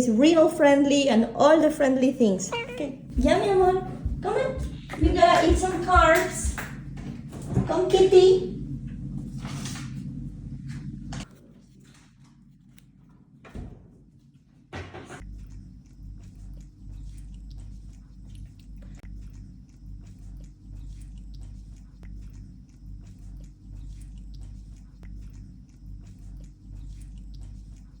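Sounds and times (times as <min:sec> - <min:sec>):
steady low rumble: 0:00.0 - 0:12.8, 0:15.2 - 0:28.0
cat lapping and chewing: 0:15.2 - 0:28.0.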